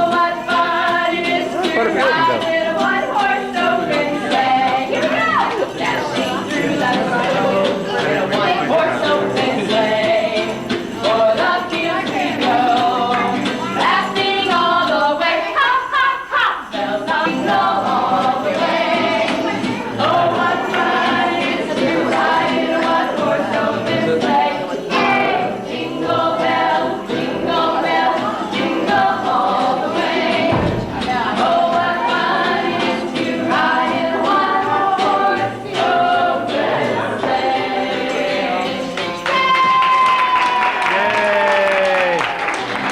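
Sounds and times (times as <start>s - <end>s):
group of voices singing: 0.0s - 41.7s.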